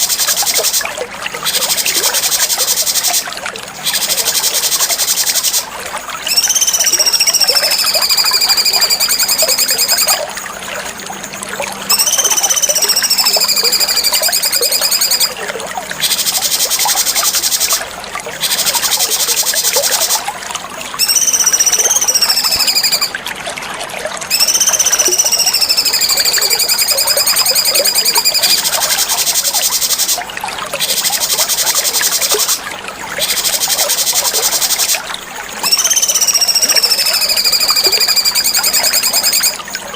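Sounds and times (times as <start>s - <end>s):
bird whistling: 6.2s - 10.2s, 11.9s - 15.4s, 21.0s - 23.1s, 24.3s - 30.2s, 35.6s - 39.6s.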